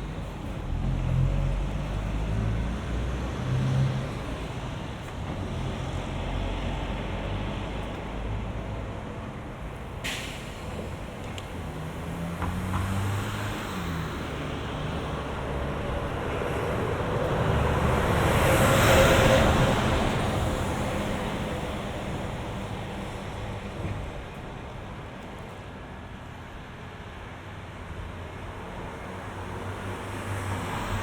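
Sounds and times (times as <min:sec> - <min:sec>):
traffic passing on a bridge: 0:00.0 - 0:31.0.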